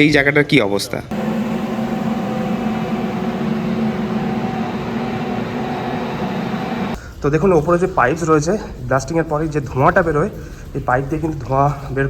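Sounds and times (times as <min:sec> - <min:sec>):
machinery drone: 0:01.1 - 0:07.0.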